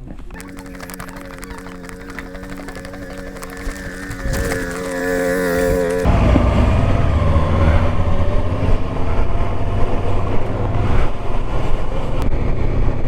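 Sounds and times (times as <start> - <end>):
wind rumble on microphone: 0.0 - 13.0
motorcycle engine running: 0.3 - 6.1.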